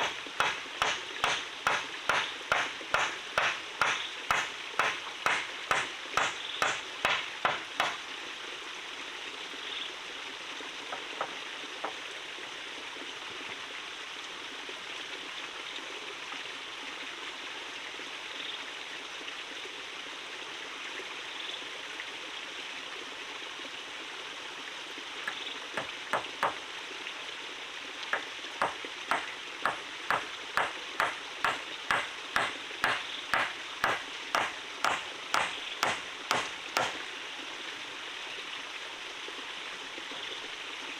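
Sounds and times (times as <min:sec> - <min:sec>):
tool striking wood: 0:00.0 - 0:08.0, 0:25.8 - 0:26.6, 0:28.1 - 0:37.0
forest stream rushing: 0:00.0 - 0:40.9.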